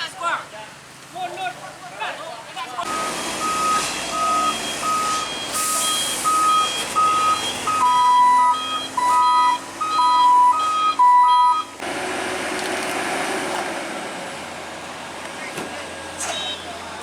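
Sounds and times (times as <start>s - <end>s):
vehicle rumble: 0.0s - 17.0s
high reversing alarm beeps: 2.9s - 11.8s, 16.3s - 16.8s
low reversing alarm beeps: 2.9s - 11.8s, 16.3s - 16.8s.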